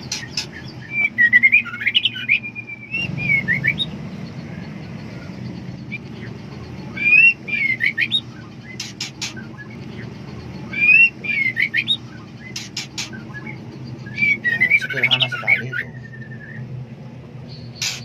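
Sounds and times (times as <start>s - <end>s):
bird whistling call: 0.0s - 3.9s, 6.9s - 9.8s, 10.7s - 16.7s, 17.5s - 18.0s
sharp bird clicks: 0.0s - 14.5s, 17.5s - 18.0s
steady low hum: 0.0s - 18.0s.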